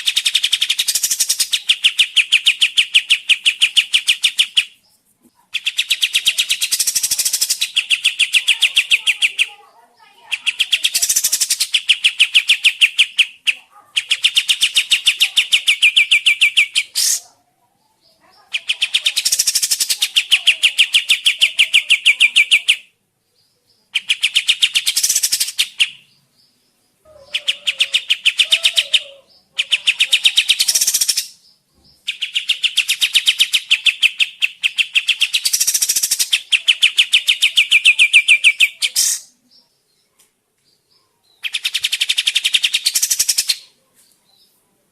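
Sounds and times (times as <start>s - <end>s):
songbird rattling song: 0.0s - 44.6s.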